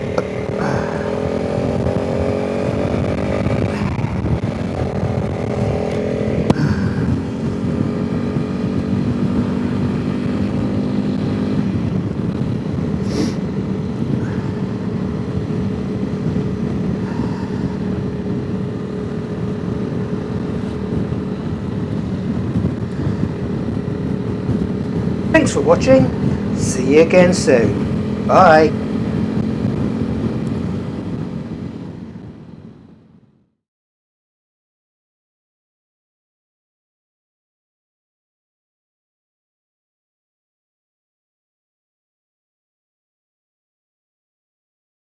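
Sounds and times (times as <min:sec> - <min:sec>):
motorcycle engine accelerating: 0:00.0 - 0:32.7
wind noise on microphone: 0:01.6 - 0:18.6, 0:19.4 - 0:33.0.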